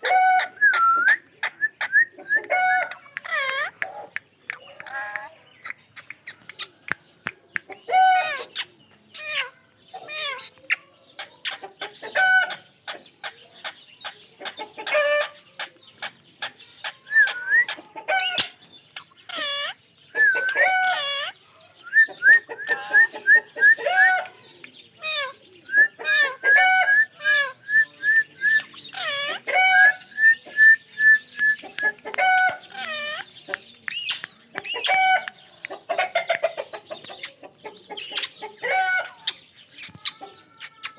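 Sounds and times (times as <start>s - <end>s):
parrot squawking and chattering: 2.4s - 7.0s, 7.6s - 12.7s, 18.0s - 19.8s, 20.6s - 21.4s, 25.0s - 25.4s, 28.6s - 30.0s, 31.6s - 40.9s.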